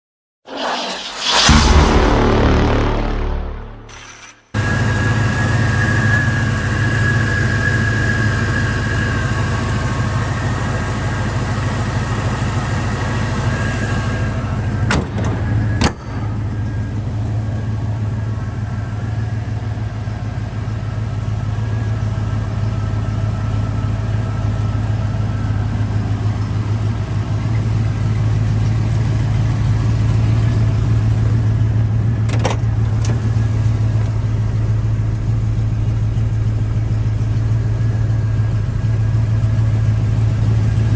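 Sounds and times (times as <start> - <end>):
faint high whine: 4.0 - 25.2
car engine idling: 4.6 - 40.9.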